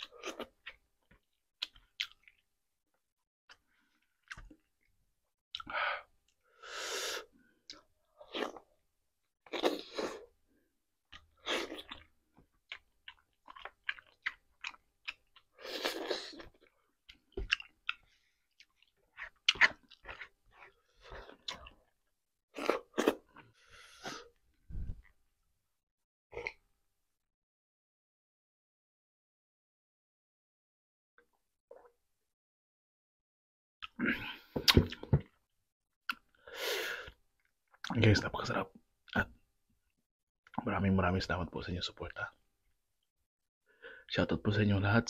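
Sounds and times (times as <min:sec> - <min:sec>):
chewing with lip smacks: 0:17.1 - 0:21.9.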